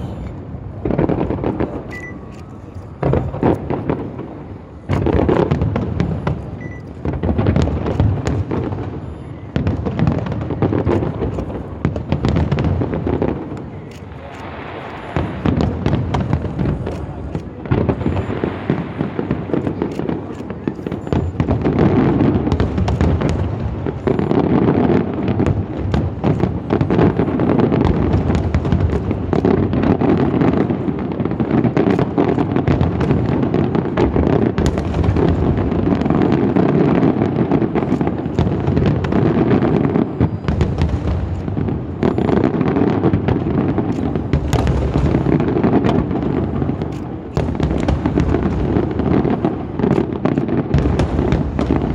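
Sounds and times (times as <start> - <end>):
fireworks bursting: 0.0 - 51.9.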